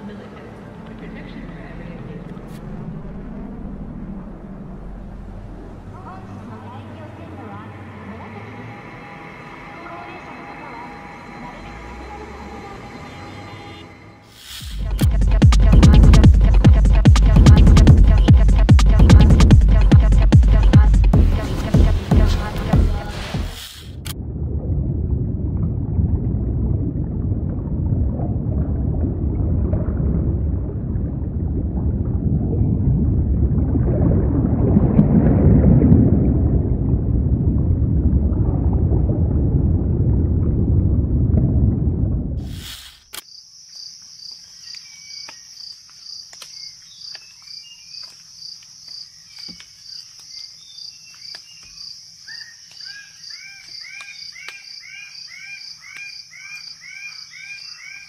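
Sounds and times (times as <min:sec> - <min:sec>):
low rumbling underwater ambience: 0:00.0 - 0:14.2, 0:24.1 - 0:42.7
crickets chirping: 0:05.2 - 0:14.8, 0:42.4 - 0:58.0.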